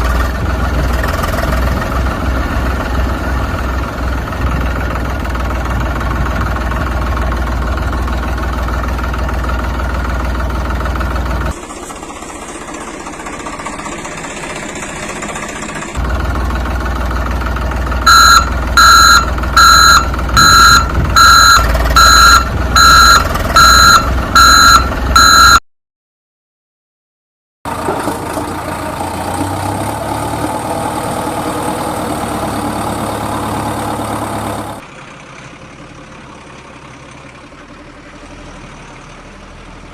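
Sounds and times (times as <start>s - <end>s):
vehicle engine running: 0.0s - 25.6s, 27.7s - 39.9s
reversing alarm beeping: 18.0s - 25.6s.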